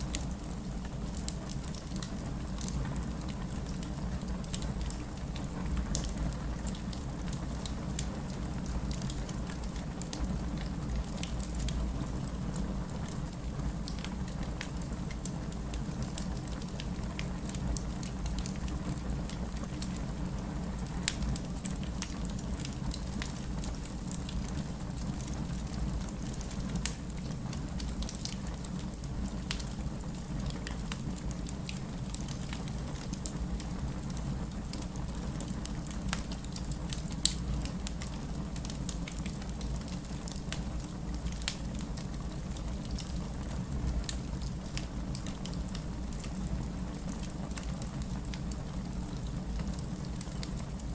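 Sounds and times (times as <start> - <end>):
fire crackling and popping: 0.0 - 50.9
rumble of flames: 0.0 - 50.9.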